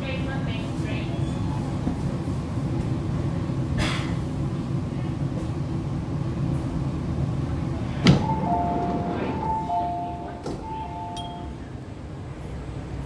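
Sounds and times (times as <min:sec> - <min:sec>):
train rumbling low: 0:00.0 - 0:13.0
two-note electronic chime: 0:08.2 - 0:11.7.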